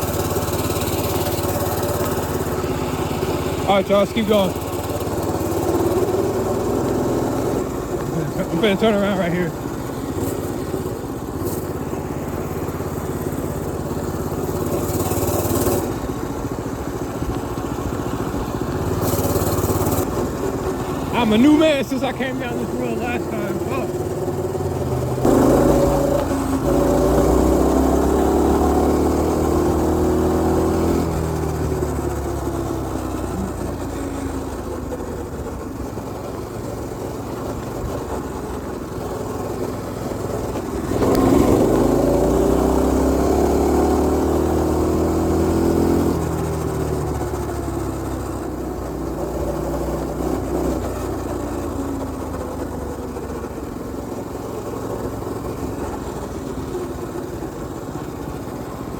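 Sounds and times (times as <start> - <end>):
mini bike engine revving: 0.0 - 58.9.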